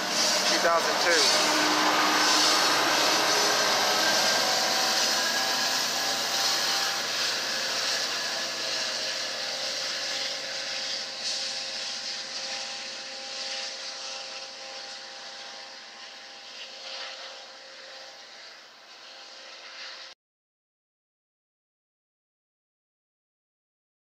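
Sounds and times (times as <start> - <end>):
passenger train rolling on rails: 0.0 - 9.7.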